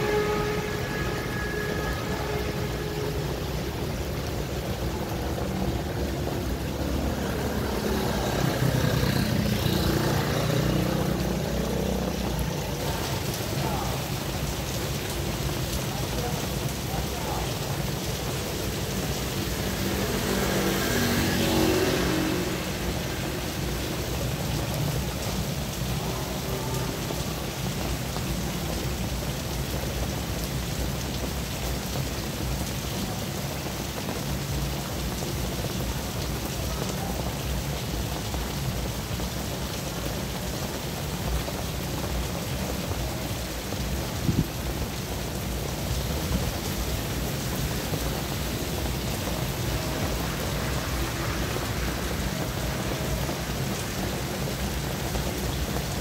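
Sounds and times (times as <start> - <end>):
rain on asphalt road: 0.0 - 56.0
vehicle passing: 3.1 - 13.5, 19.0 - 24.2.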